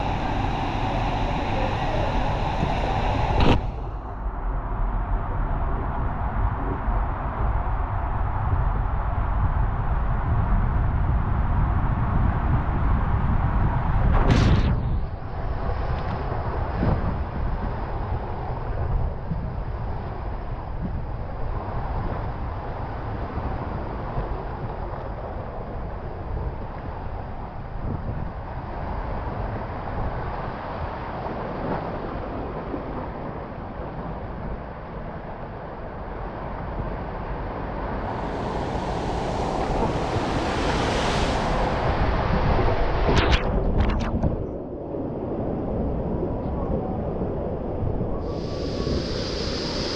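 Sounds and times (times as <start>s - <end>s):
rushing water in waterslide: 36.0s - 49.9s.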